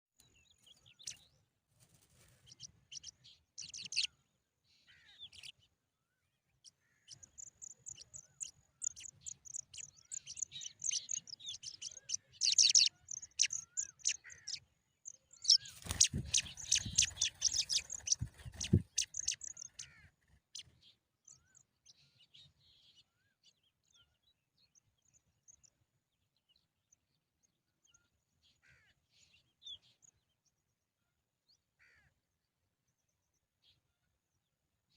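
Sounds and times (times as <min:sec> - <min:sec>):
nestlings cheeping: 0:15.5 - 0:19.6.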